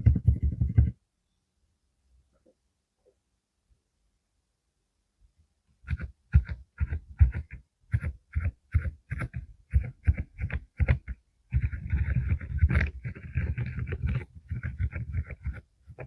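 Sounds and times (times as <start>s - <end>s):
mechanical keyboard typing: 5.9s - 16.0s.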